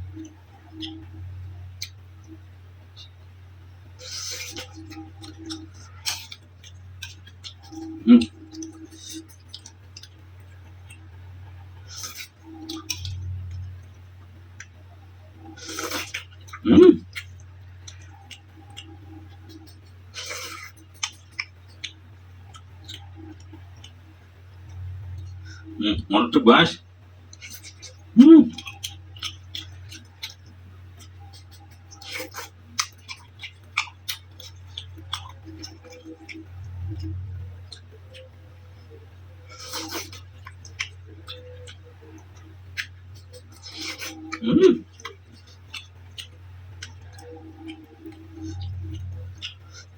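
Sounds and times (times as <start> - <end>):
low hum: 0.0 - 49.9
chewing and mouth smacks: 0.1 - 2.4, 3.9 - 25.8, 26.8 - 49.9
mouth sound: 7.6 - 9.3, 15.4 - 17.3, 25.2 - 26.8, 27.5 - 29.0, 43.4 - 45.2.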